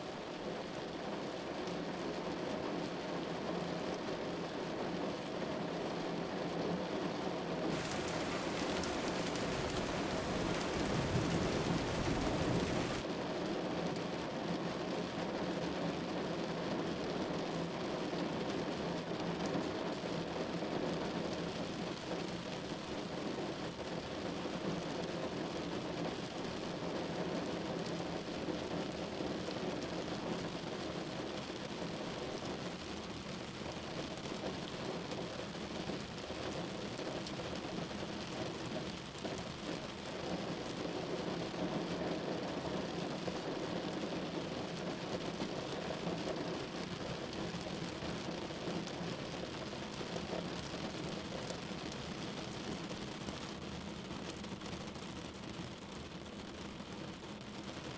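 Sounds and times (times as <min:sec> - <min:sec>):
rain pattering on a surface: 0:00.0 - 0:57.9.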